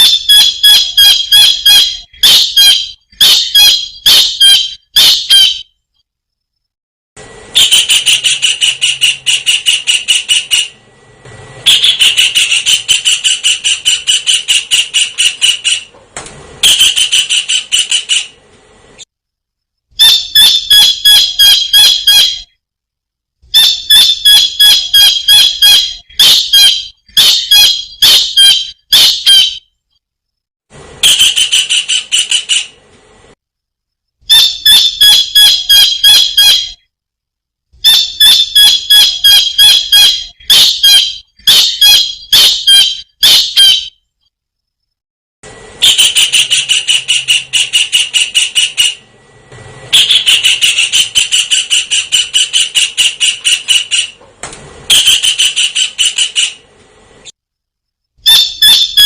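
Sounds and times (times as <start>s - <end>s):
kingfisher calling: 50.0s - 54.2s.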